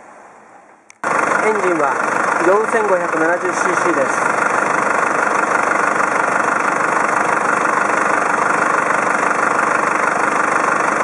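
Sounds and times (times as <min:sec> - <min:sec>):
diesel engine idling: 0:00.9 - 0:11.0.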